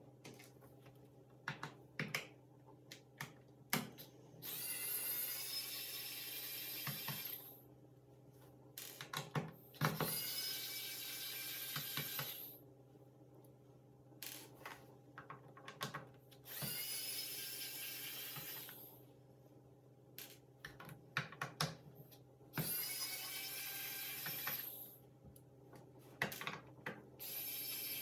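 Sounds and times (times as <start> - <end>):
electric screwdriver running: 4.5 - 7.4.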